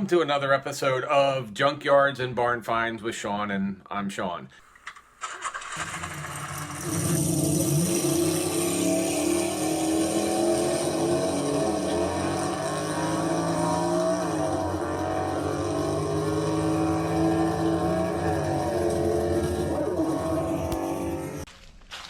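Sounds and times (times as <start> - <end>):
car engine running: 5.4 - 21.5.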